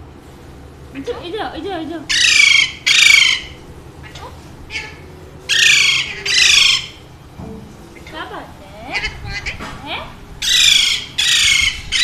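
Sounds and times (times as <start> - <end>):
parakeet squawking: 2.1 - 7.1, 8.0 - 12.0.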